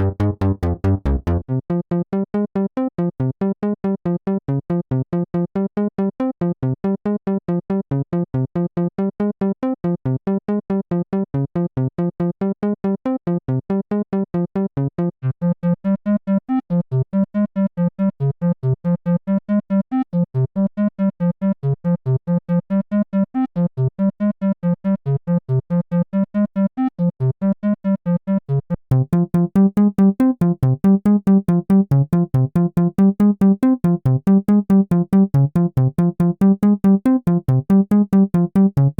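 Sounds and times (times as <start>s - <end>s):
synthesizer playing repeated notes: 0.0s - 1.4s, 28.9s - 38.9s.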